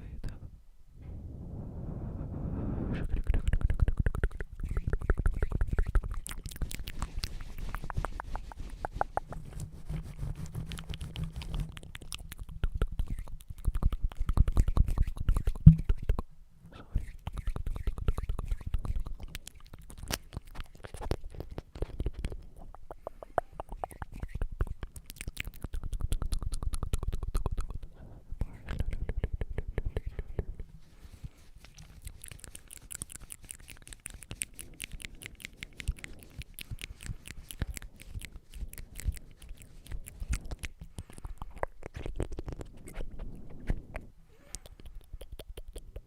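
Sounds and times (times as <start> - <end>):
wet mouth clicks and smacks: 3.0 - 16.3, 17.0 - 46.0.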